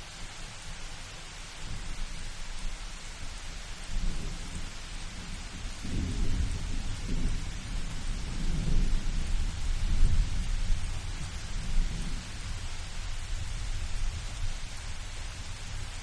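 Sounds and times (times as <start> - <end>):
steady rain hiss: 0.0 - 16.0
thunder rumbling: 5.2 - 12.5.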